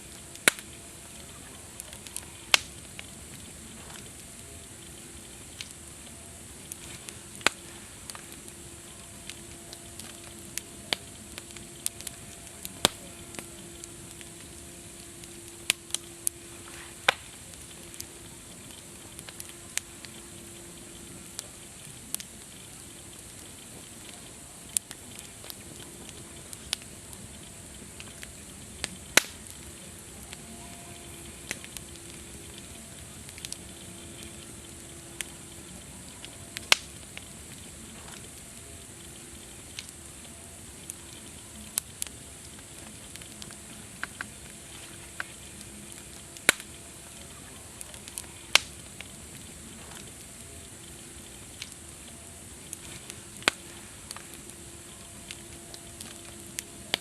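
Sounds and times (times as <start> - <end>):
campfire crackling and popping: 0.0 - 57.0
faint steady tone: 0.0 - 57.0
steady hiss: 0.0 - 57.0.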